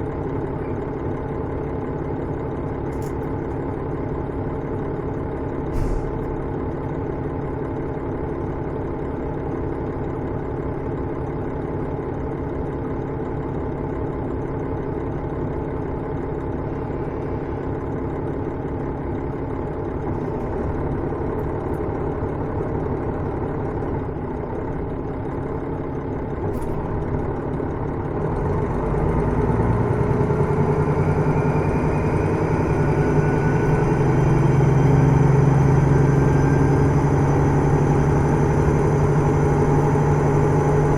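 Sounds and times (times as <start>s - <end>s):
diesel railcar engine: 0.0s - 40.9s
click: 2.8s - 3.3s.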